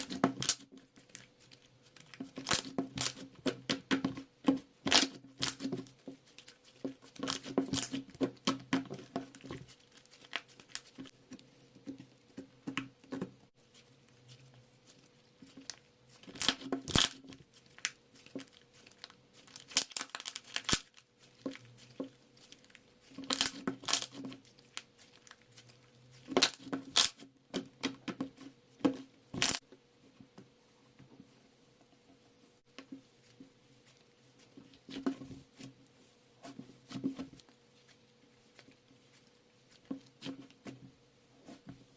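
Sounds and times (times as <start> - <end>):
crinkling and tearing: 14.2 - 27.2.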